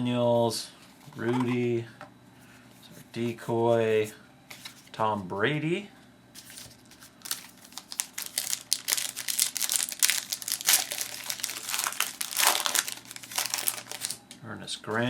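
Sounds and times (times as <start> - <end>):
plastic wrapper crinkling and tearing: 6.4 - 14.4.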